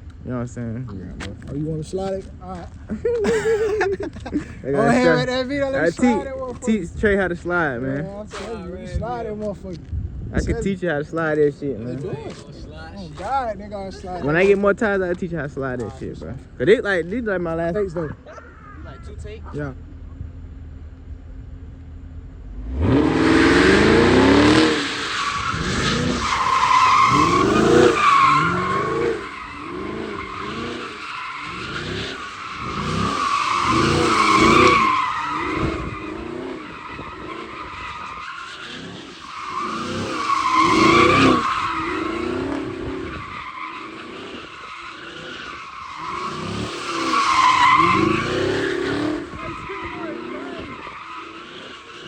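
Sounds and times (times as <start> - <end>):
car engine revving: 18.6 - 52.0
tyre squeal: 23.0 - 52.0.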